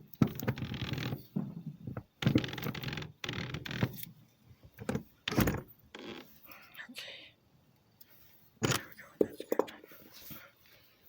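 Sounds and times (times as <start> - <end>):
window sash knocking and scraping: 4.8 - 5.7.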